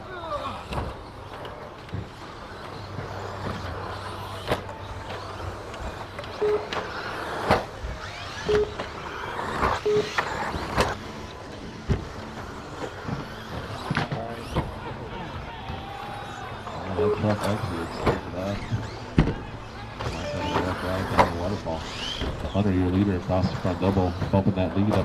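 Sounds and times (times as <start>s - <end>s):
small motors whining: 0.0s - 25.0s
short beeps: 6.4s - 6.8s, 8.4s - 8.8s, 9.8s - 10.2s, 20.2s - 20.8s.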